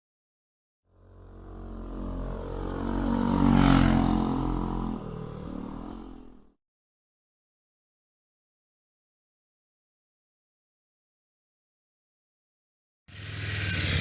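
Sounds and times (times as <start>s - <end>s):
motorcycle running past: 0.9s - 6.6s.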